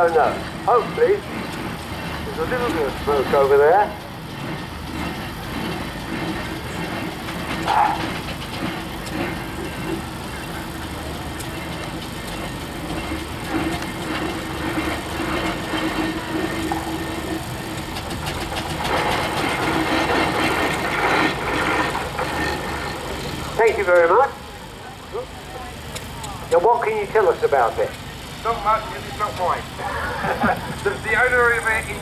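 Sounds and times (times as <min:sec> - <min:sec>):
steam engine exhaust beats: 0:00.0 - 0:32.0.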